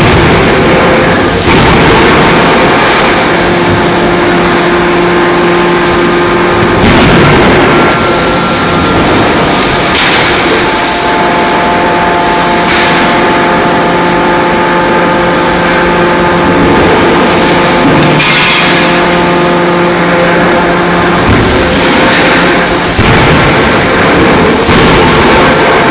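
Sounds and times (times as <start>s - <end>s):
forging hammer machinery noise: 0.0s - 25.9s
steady hum tones: 0.0s - 25.9s.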